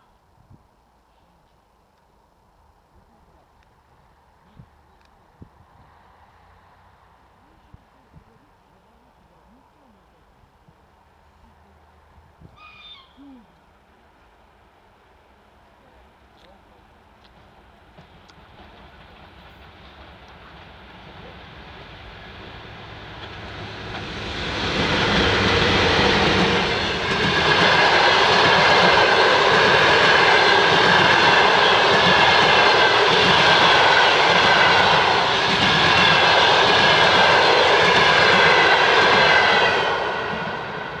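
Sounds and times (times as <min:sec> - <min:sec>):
electric train passing with whine: 0:14.2 - 0:41.0.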